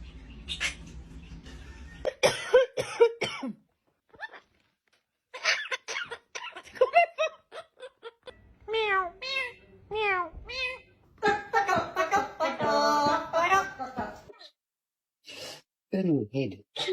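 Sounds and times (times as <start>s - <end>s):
parrot imitating coughing: 5.4s - 6.7s.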